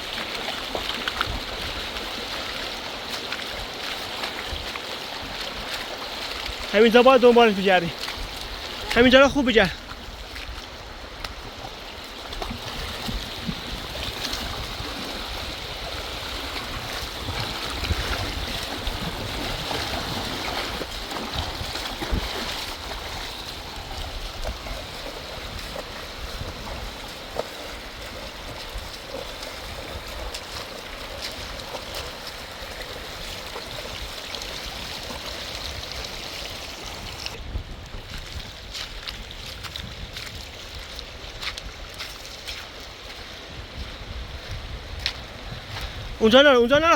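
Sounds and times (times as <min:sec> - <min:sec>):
river rushing: 0:00.0 - 0:37.4.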